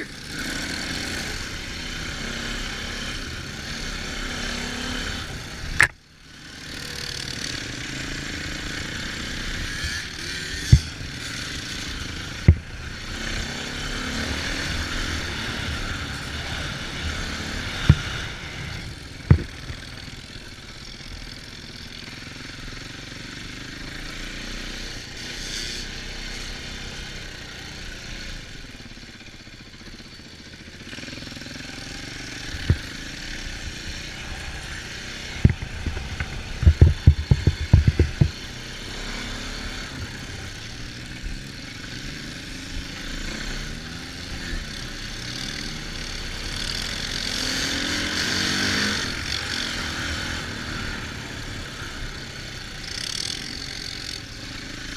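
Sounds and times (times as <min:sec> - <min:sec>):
vehicle engine running: 0:04.4 - 0:23.8, 0:28.5 - 0:43.3
sharp knocks: 0:19.3 - 0:19.7, 0:35.4 - 0:38.3.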